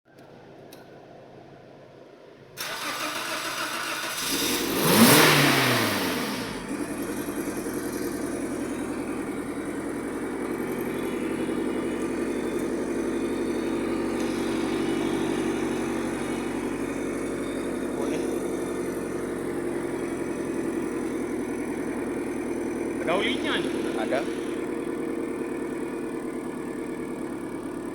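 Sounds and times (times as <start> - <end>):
car engine starting and idling: 2.3 - 27.9.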